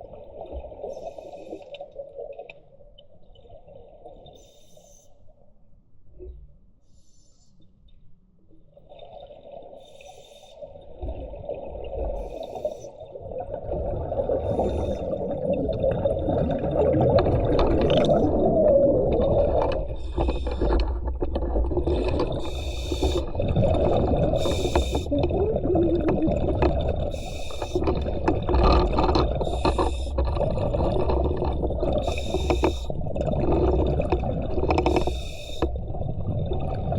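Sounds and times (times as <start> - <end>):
muffled underwater gurgling: 11.0 - 36.9.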